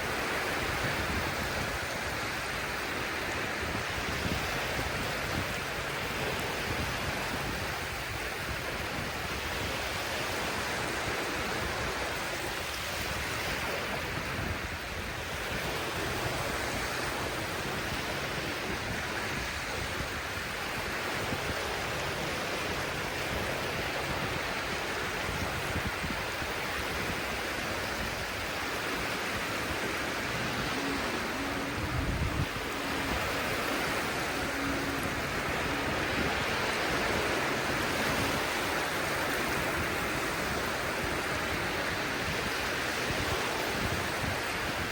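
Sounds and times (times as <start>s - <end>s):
sea surf rushing on shore: 0.0s - 44.9s.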